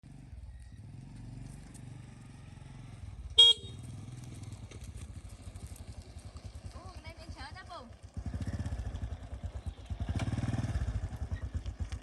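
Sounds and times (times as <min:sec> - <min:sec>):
motorbike engine running: 0:00.1 - 0:12.0
short horn beep: 0:03.4 - 0:03.8.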